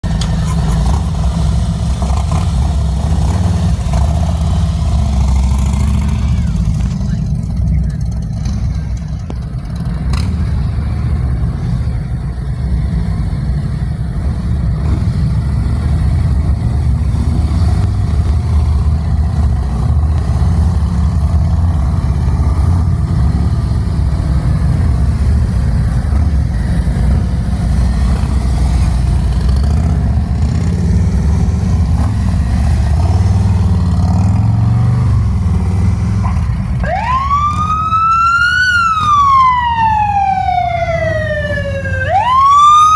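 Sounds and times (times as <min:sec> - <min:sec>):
motorcycle engines rumbling: 0:00.0 - 0:42.9
siren rising in pitch: 0:36.8 - 0:42.9.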